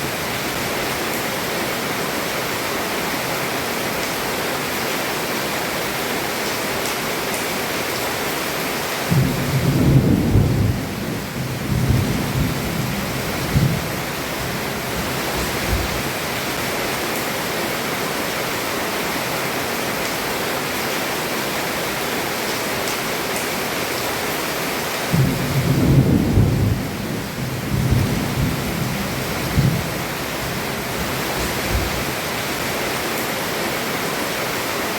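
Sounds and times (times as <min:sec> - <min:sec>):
heavy rain on a roof: 0:00.0 - 0:34.9
thunder rumbling: 0:09.1 - 0:16.2, 0:25.1 - 0:32.2.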